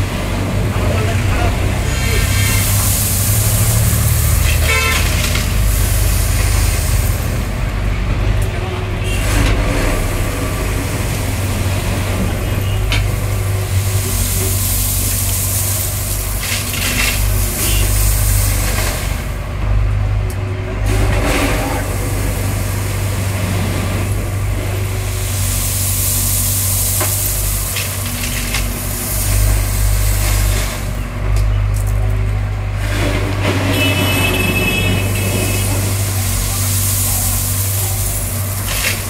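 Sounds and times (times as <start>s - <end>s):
rushing noise: 0.0s - 7.8s
excavator diesel engine running: 0.0s - 39.0s.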